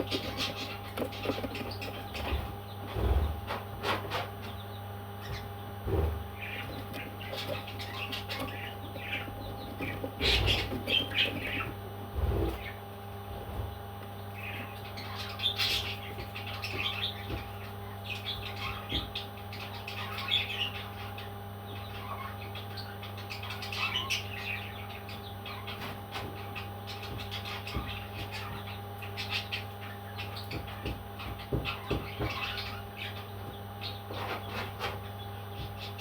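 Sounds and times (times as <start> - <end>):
steady low hum: 0.0 - 36.0
parrot chirping and squawking: 5.2 - 12.8, 14.4 - 35.2.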